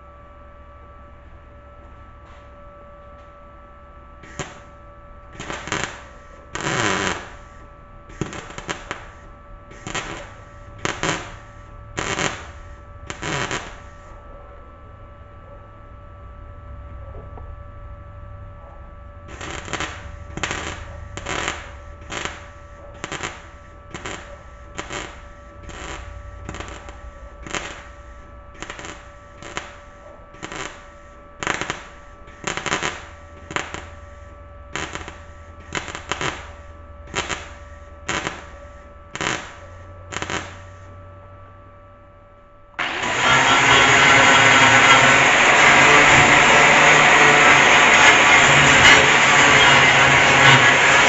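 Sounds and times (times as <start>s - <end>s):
mig welder crackling bursts: 4.2s - 14.2s, 19.3s - 40.9s, 42.8s - 51.0s
angle grinder running: 5.3s - 14.1s, 19.3s - 29.8s, 40.1s - 40.7s, 42.8s - 51.0s.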